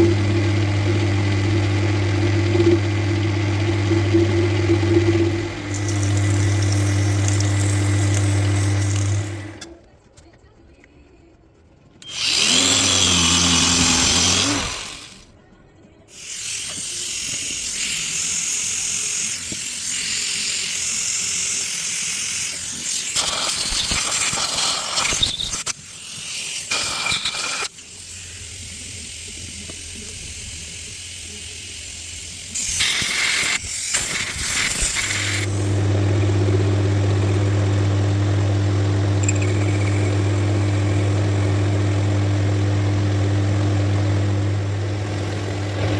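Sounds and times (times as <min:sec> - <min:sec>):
electric power tool running: 0:00.0 - 0:09.7, 0:12.0 - 0:15.3, 0:27.5 - 0:45.9.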